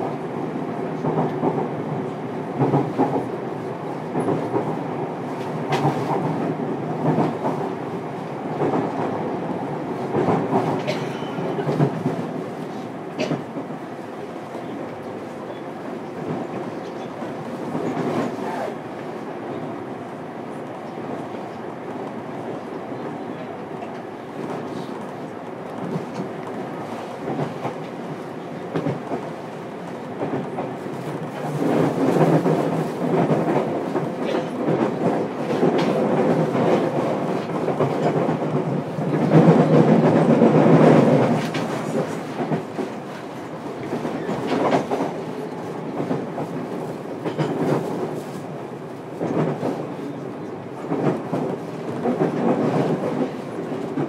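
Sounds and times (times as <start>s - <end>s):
wheels rumbling on rail: 0.0s - 54.0s
rail-joint clacks: 5.4s - 7.7s, 10.1s - 13.7s, 30.2s - 48.4s.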